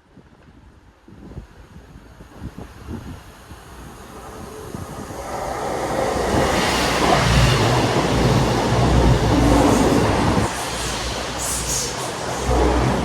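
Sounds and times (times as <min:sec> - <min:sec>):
diesel train passing: 0:03.1 - 0:13.0
train wheels drone: 0:03.2 - 0:13.0.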